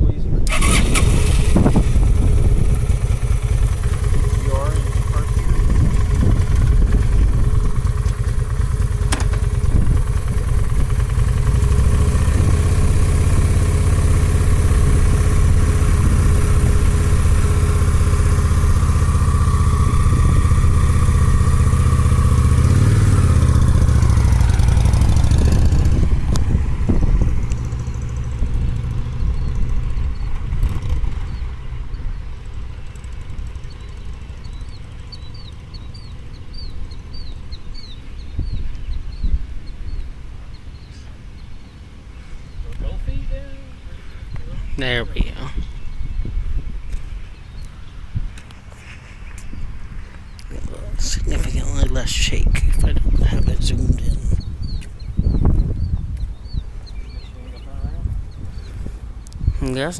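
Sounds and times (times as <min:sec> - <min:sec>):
motorcycle engine running: 0:00.5 - 0:41.8, 0:49.5 - 0:59.9
birds chirping faintly: 0:26.5 - 0:59.9.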